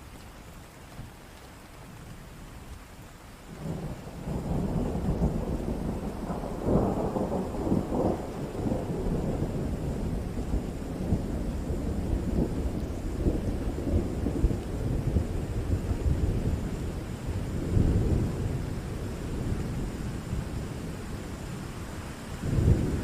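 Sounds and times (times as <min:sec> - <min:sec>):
steady rain: 0:00.0 - 0:23.0
thunder rumbling: 0:03.6 - 0:23.0.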